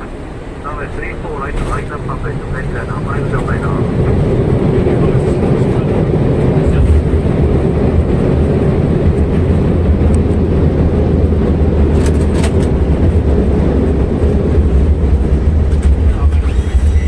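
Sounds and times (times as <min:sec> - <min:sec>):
airliner rumbling on runway: 0:00.0 - 0:17.0.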